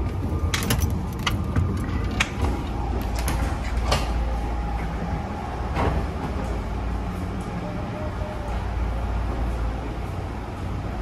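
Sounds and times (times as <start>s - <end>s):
sliding door clicks and clanks: 0.0s - 6.6s
train rumbling: 0.0s - 11.0s.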